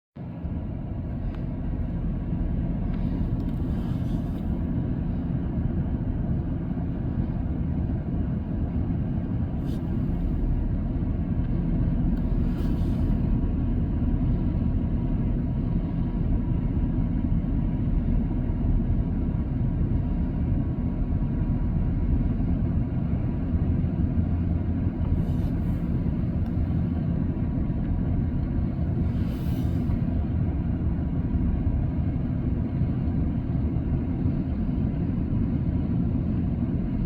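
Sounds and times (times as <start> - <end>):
vehicle engine rumbling: 0.2 - 37.0
brief hisses: 12.4 - 13.2, 29.0 - 30.0.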